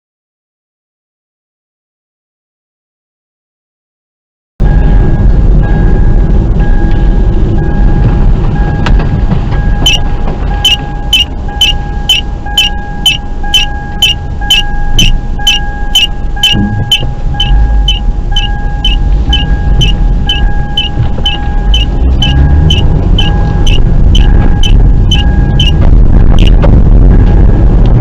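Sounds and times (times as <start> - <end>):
car rumbling: 4.6 - 28.0
steady electronic tone: 9.7 - 26.7
sharp electronic tick: 9.8 - 26.6.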